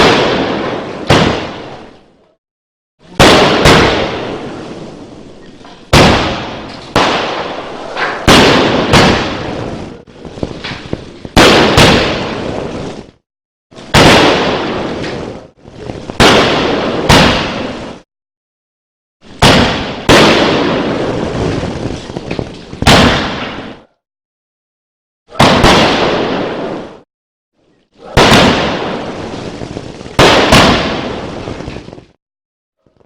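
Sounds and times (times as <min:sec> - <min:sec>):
firework bangs: 0:00.0 - 0:02.2, 0:03.1 - 0:13.2, 0:13.8 - 0:18.0, 0:19.2 - 0:24.0, 0:25.3 - 0:27.1, 0:28.1 - 0:32.2
firework crackling: 0:03.2 - 0:13.2, 0:13.8 - 0:18.0, 0:19.3 - 0:23.8, 0:28.2 - 0:32.2.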